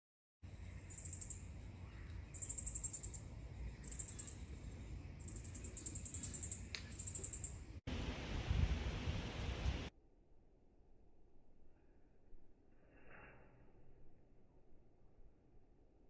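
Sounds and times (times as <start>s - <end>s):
low outdoor rumble: 0.4s - 9.9s
small bird trilled chirps: 0.8s - 7.7s.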